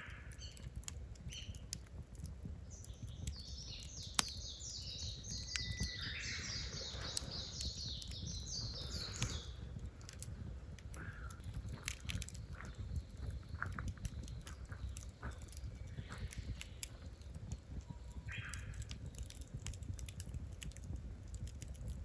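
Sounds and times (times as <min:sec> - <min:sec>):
wood fire crackling: 0:00.0 - 0:22.0
bird chirping: 0:02.7 - 0:09.6.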